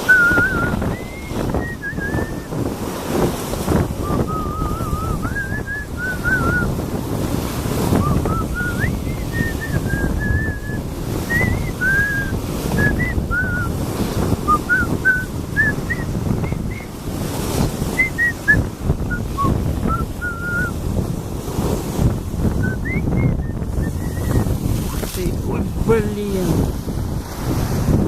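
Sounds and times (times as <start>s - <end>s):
thin wavering whistling: 0.0s - 2.6s, 4.0s - 6.7s, 7.9s - 13.8s, 14.4s - 17.0s, 17.9s - 20.8s, 22.6s - 24.5s
sea surf washing in: 0.0s - 28.0s
wind buffeting microphone: 0.0s - 28.0s.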